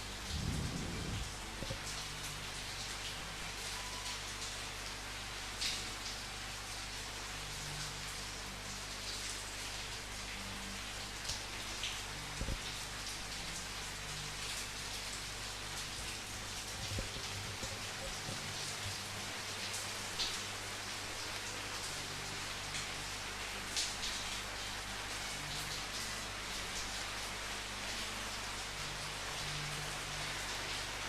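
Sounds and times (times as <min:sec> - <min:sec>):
low steady hum: 0:00.0 - 0:04.2
rain pattering: 0:00.0 - 0:31.0.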